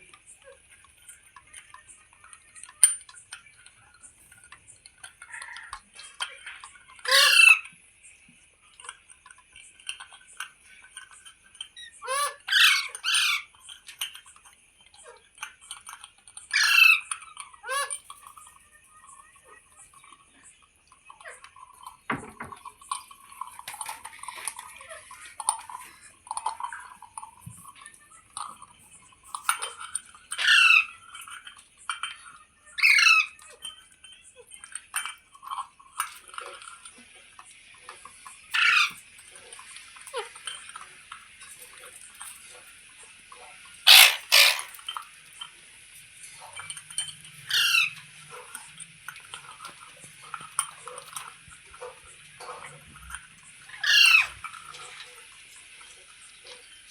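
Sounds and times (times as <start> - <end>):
parrot chattering and clicks: 0.0 - 7.8, 8.7 - 37.0, 38.2 - 42.8, 43.5 - 52.8, 53.5 - 55.8
parrot screeching calls: 7.0 - 7.7, 11.8 - 13.5, 16.5 - 18.2, 30.3 - 31.0, 32.8 - 33.5, 38.5 - 39.0, 43.8 - 44.8, 47.5 - 48.0, 53.7 - 54.4.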